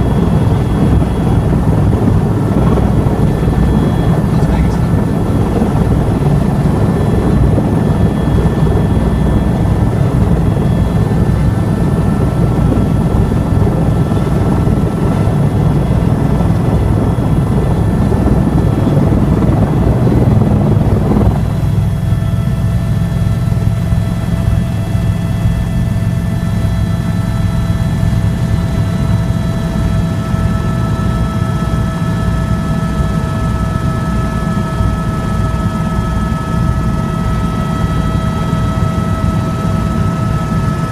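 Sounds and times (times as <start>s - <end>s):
broad rushing noise: 0.0s - 22.0s
helicopter rotor throb: 0.0s - 40.9s
turbine whine: 0.0s - 40.9s.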